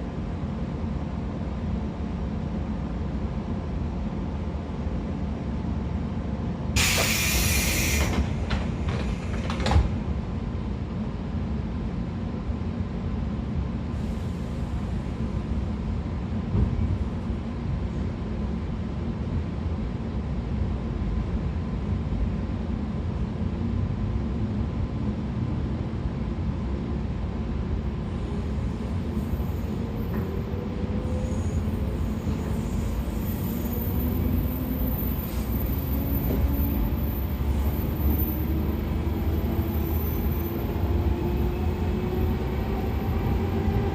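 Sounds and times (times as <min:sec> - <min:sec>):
train wheels and motors rumbling: 0:00.0 - 0:43.9
loud hiss: 0:06.8 - 0:08.1.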